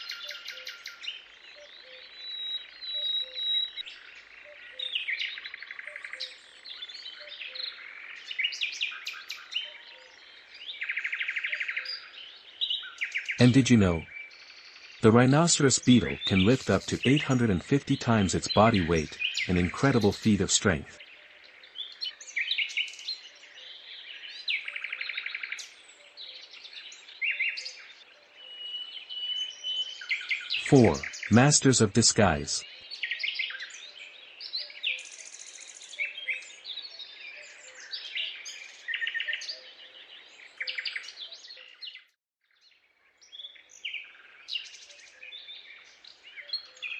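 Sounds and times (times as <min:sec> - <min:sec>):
birds chirping: 0:15.0 - 0:20.9.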